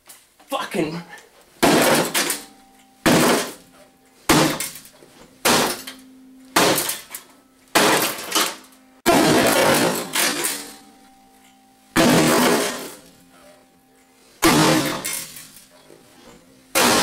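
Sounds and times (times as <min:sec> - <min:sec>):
heavy smashing blows: 0:01.6 - 0:03.6, 0:04.3 - 0:04.8, 0:05.4 - 0:07.1, 0:07.8 - 0:10.8, 0:12.0 - 0:13.0, 0:14.4 - 0:15.5, 0:16.7 - 0:17.0
breaking plastic and glass rattle: 0:01.6 - 0:10.9, 0:12.0 - 0:13.1, 0:14.4 - 0:17.0.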